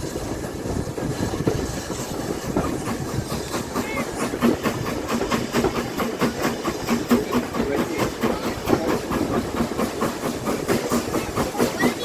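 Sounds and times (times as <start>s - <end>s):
steady steam hiss: 0.0s - 12.0s
steam locomotive chuffing: 0.0s - 12.0s.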